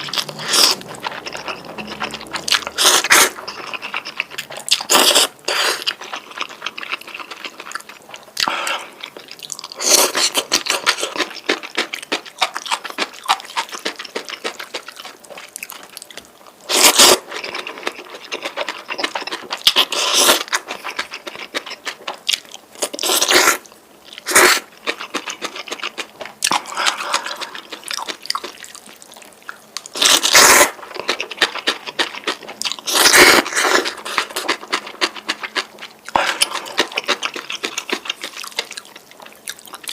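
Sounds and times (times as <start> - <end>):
wet chewing and crunching: 0.0 - 39.9.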